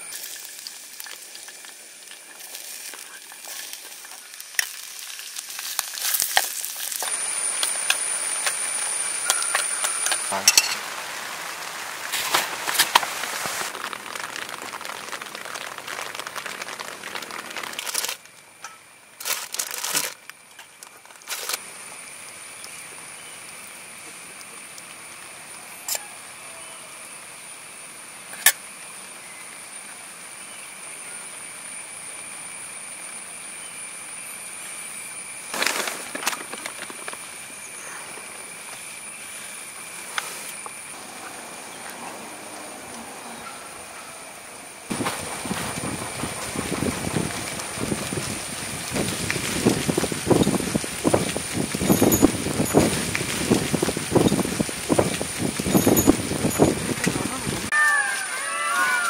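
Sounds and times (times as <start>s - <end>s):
vegetables sizzling in a saucepan: 0.0s - 19.2s, 44.8s - 57.9s.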